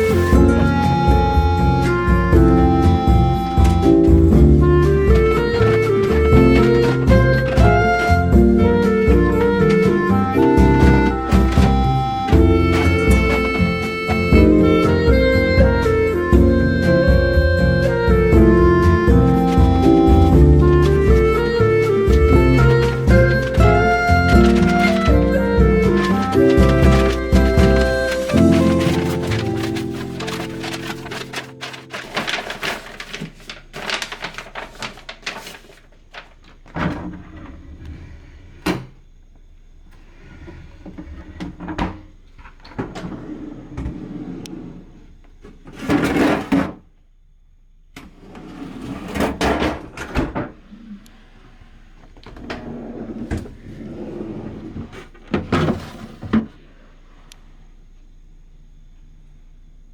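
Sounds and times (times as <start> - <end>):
plastic containers knocking and clattering: 0.0 - 14.4, 18.3 - 37.4
rustling and swishing: 18.7 - 35.8.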